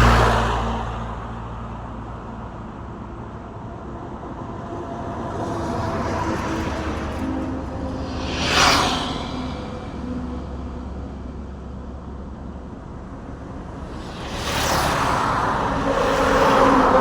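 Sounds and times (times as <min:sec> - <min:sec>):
vehicle rushing past: 0:00.0 - 0:02.2, 0:05.2 - 0:10.7, 0:13.6 - 0:17.0
traffic engine rumble: 0:00.0 - 0:17.0.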